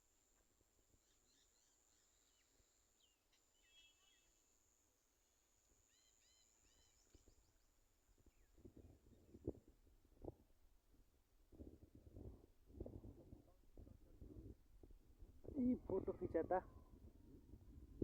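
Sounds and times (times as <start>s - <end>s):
faint small bird chirps: 0.4s - 4.9s, 5.7s - 9.6s.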